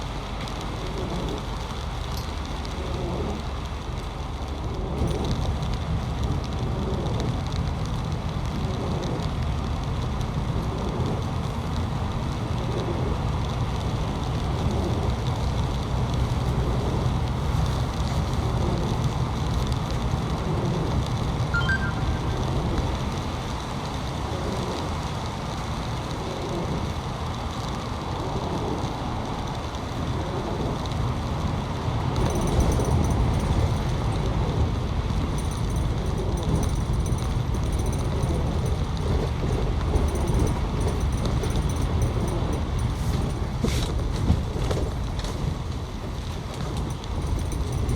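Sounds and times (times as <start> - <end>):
road vehicles rumbling: 0.0 - 47.9
faint high steady tones: 21.6 - 23.1.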